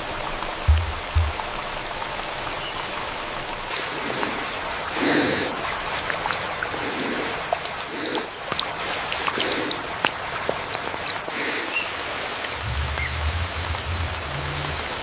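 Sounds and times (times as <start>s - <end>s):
raindrops ticking: 0.0s - 14.8s
rain on foliage: 0.0s - 15.0s
deep low thumps: 0.4s - 2.4s.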